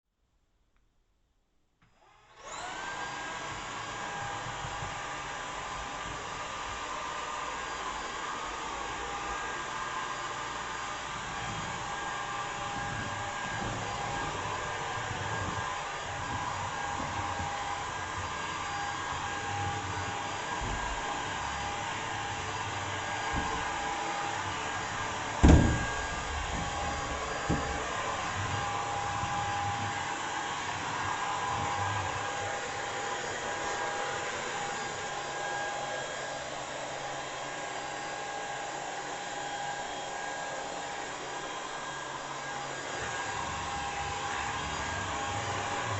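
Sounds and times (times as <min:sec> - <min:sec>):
stick vacuum running: 0:02.0 - 0:36.2
sharp knock: 0:25.4 - 0:26.1.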